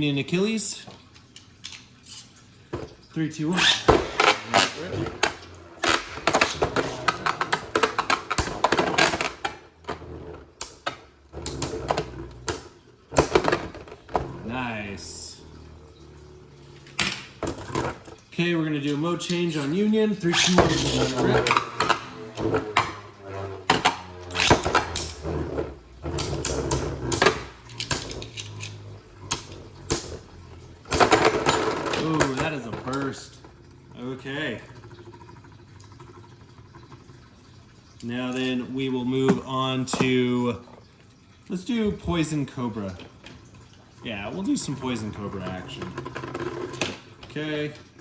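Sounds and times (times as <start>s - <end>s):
spinning tops whirring: 3.4s - 18.2s, 19.3s - 33.4s.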